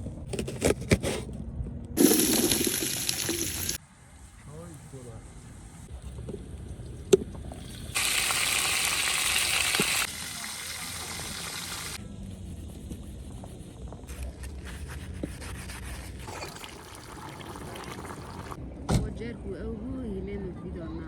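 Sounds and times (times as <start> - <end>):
food sizzling in hot oil: 2.0 - 3.8, 7.7 - 12.0.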